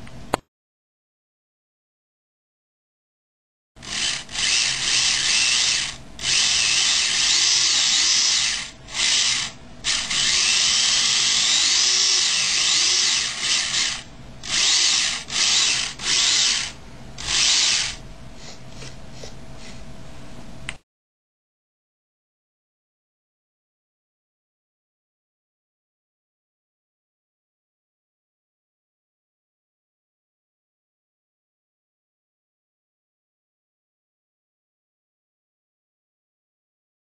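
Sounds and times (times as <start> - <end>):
small electric motor whining: 3.8 - 18.6.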